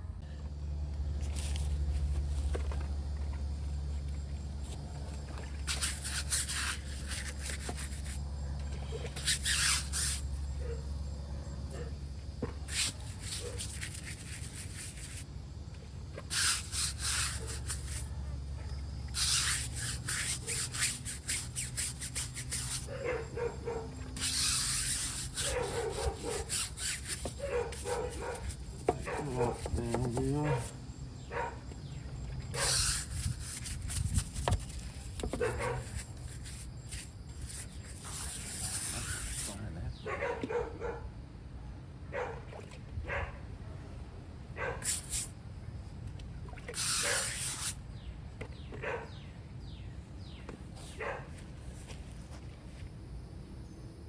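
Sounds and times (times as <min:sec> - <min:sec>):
low hum: 0:00.0 - 0:39.2
spray hissing: 0:16.3 - 0:18.0, 0:19.2 - 0:22.9, 0:46.8 - 0:47.8.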